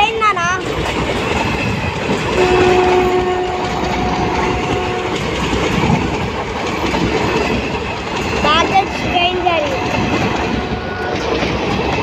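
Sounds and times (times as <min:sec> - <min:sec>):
train wheels clattering on rails: 0:00.0 - 0:12.0
two-tone train horn: 0:02.4 - 0:05.4.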